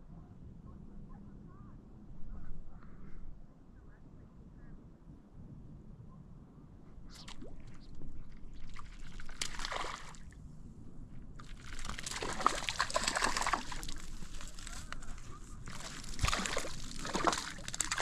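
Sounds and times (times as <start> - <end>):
water splashing and sloshing: 7.1 - 10.4, 11.1 - 18.0.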